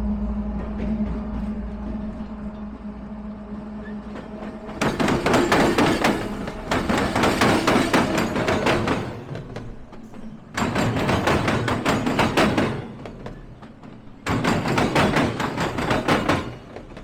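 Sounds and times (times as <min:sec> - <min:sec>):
steady low hum: 0:00.0 - 0:04.8
sharp knocks and clatter: 0:04.7 - 0:17.0.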